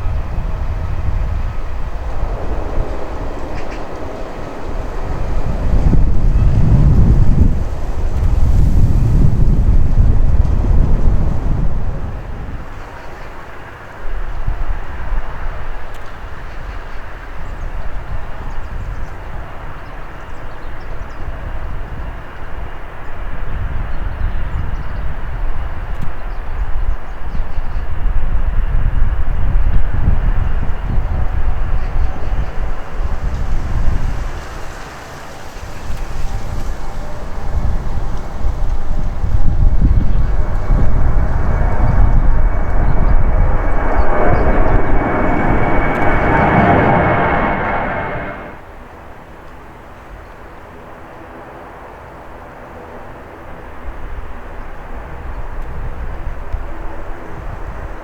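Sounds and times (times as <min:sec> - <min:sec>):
wind buffeting microphone: 0:00.0 - 0:12.8, 0:23.4 - 0:48.6
jet engines rumbling: 0:00.0 - 0:12.9, 0:30.2 - 0:48.7.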